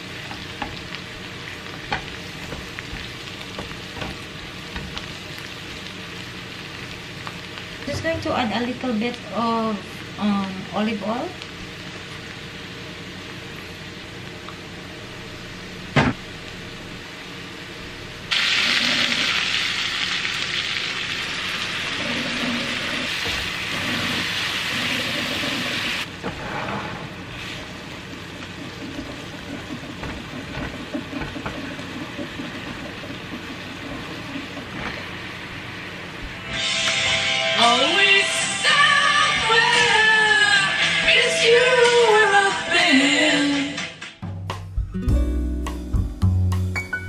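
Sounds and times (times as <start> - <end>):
food sizzling in a pan: 0.0 - 43.7
butter and oil bubbling: 18.3 - 36.5
spatula stirring mushrooms: 27.2 - 36.4.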